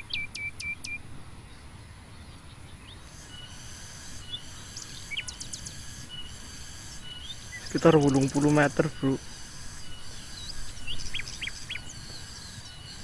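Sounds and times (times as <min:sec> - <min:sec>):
insects buzzing: 0:02.7 - 0:13.0.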